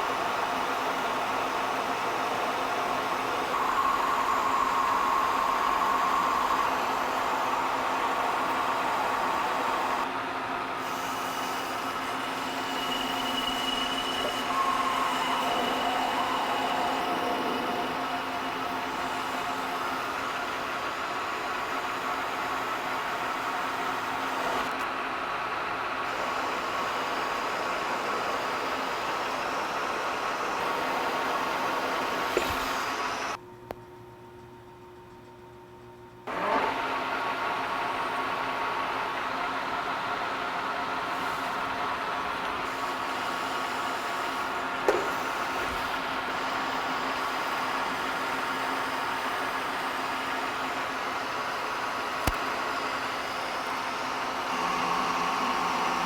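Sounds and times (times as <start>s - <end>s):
machine tool humming: 0.1s - 24.8s, 41.0s - 56.0s
sharp click: 52.2s - 52.4s.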